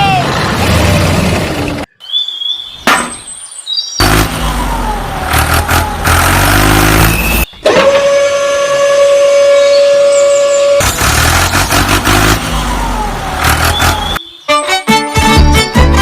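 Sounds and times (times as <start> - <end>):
faint gliding whistles: 9.0 - 10.8
vehicle engine running: 10.8 - 14.2.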